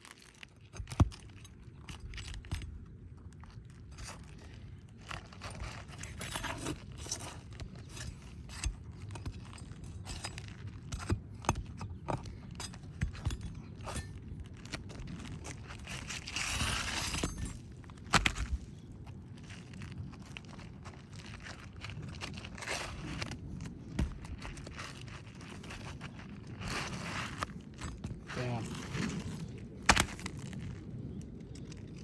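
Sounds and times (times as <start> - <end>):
scraping rustle: 14.5 - 18.7, 19.4 - 32.0.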